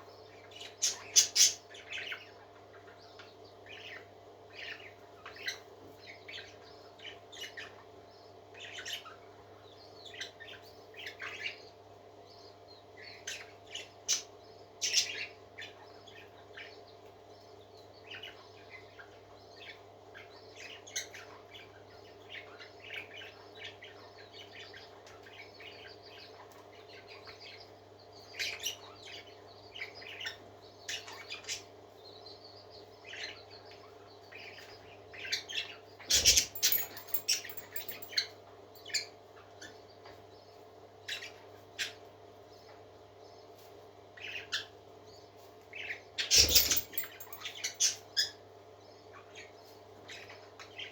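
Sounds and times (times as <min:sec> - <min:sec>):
parakeets chirping and warbling: 0:00.3 - 0:07.9, 0:08.6 - 0:11.6, 0:13.0 - 0:16.7, 0:33.0 - 0:39.8, 0:41.1 - 0:42.0, 0:45.7 - 0:48.4.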